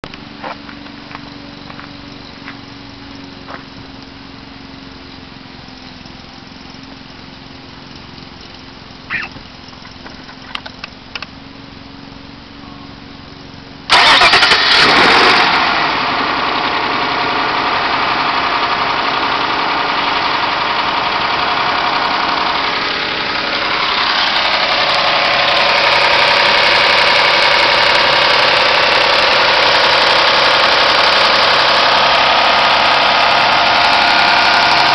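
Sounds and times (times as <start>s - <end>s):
car engine starting and idling: 0.0s - 34.9s
engine clatter: 0.0s - 34.9s.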